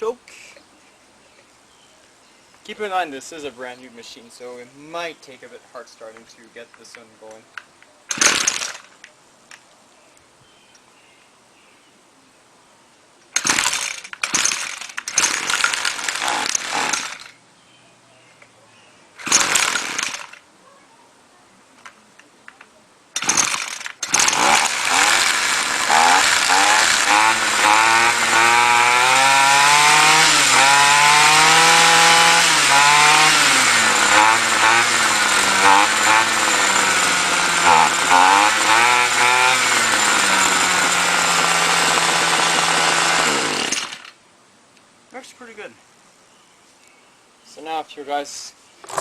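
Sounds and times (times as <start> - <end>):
trimmer engine running: 8.1 - 8.9, 13.4 - 17.4, 19.2 - 20.4, 23.2 - 44.2
recoil starter cord yanks: 8.1 - 9.0, 13.4 - 17.4, 19.2 - 20.4, 23.2 - 44.2.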